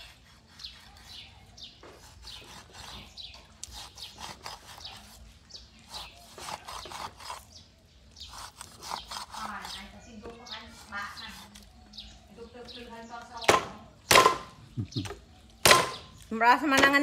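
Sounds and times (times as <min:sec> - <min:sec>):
cleaver scoring fish skin: 0:00.0 - 0:11.9
birds chirping: 0:00.0 - 0:17.0.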